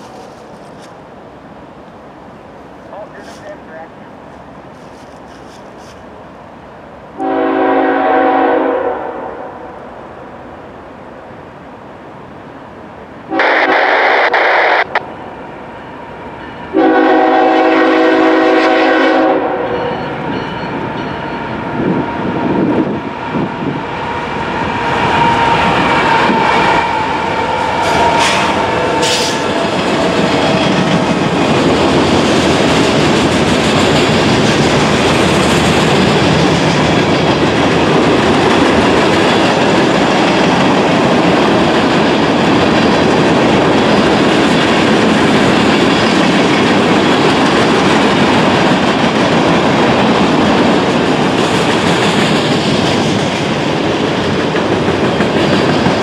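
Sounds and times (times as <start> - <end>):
locomotive horn blasts: 7.2 - 9.6, 13.3 - 14.4, 16.7 - 20.2
train wheels clattering: 24.4 - 56.0.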